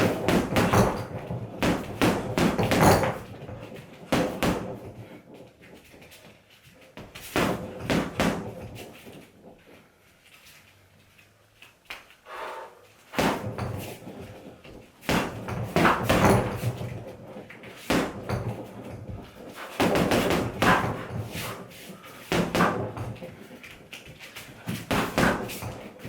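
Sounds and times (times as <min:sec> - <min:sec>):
punches thudding on heavy bag: 0:00.0 - 0:05.2, 0:07.0 - 0:09.0, 0:13.1 - 0:21.7, 0:22.3 - 0:23.4, 0:24.6 - 0:26.0.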